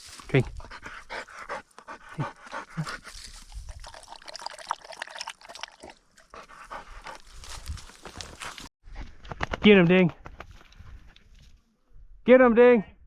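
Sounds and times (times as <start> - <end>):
dog panting: 0.4 - 3.2, 6.3 - 7.4.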